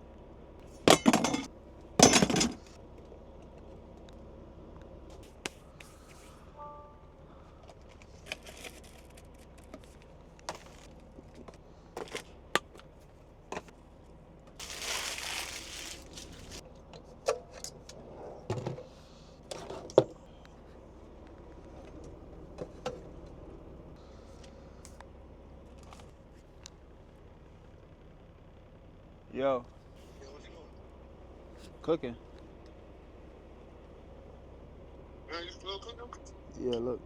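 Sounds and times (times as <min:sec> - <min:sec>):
kitchen things clicking and knocking: 0:00.9 - 0:02.6
rustling: 0:14.6 - 0:16.6.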